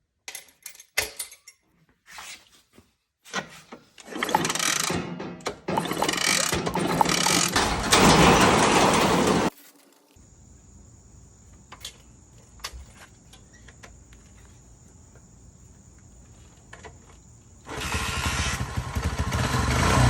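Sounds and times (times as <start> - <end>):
motorcycle engine running: 17.7 - 20.0.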